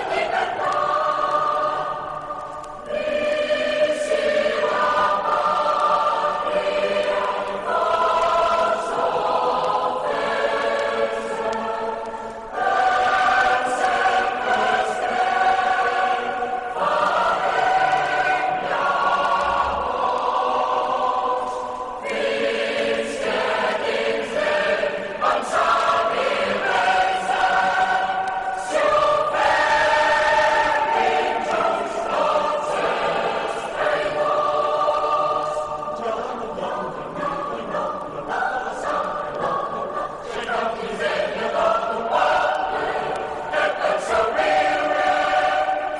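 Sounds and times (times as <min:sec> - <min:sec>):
choir singing held chords: 0:00.0 - 0:45.9.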